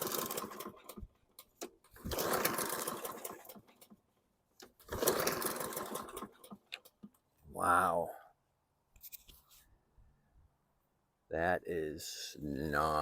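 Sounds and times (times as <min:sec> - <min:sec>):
mower engine cranking: 0:00.0 - 0:04.0, 0:04.6 - 0:07.2.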